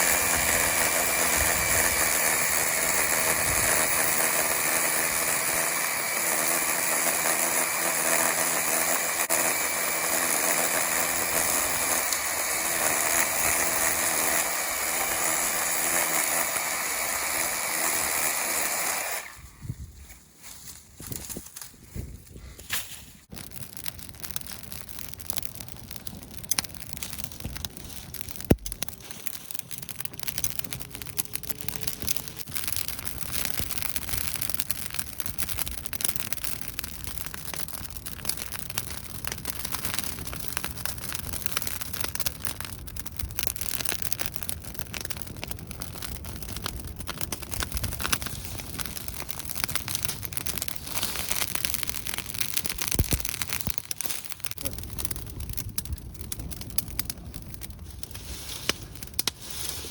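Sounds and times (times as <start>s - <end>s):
campfire crackling: 0.0s - 59.9s
sharp crack from fire: 22.6s - 59.9s.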